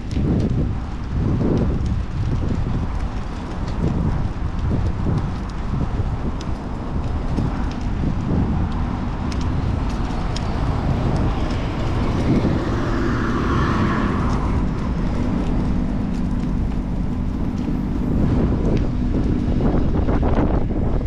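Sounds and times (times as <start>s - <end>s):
city traffic: 0.0s - 21.0s
wind buffeting microphone: 0.0s - 21.0s
motor vehicle passing: 7.1s - 21.0s.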